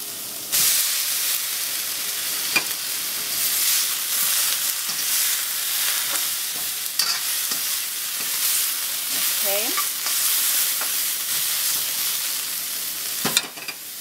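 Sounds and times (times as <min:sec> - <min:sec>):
food sizzling in a wok: 0:00.0 - 0:14.0
spatula tapping wok: 0:06.5 - 0:08.4, 0:09.1 - 0:12.0.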